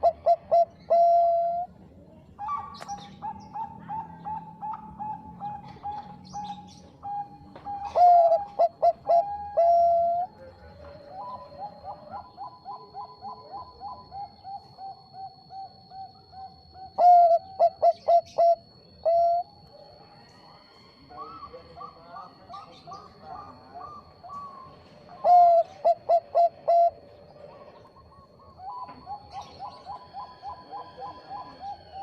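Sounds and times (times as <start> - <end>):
faint high whine: 0.0 - 32.0
soft repeated dove coos: 0.0 - 32.0
dove staccato coos: 2.4 - 14.4, 21.2 - 32.0.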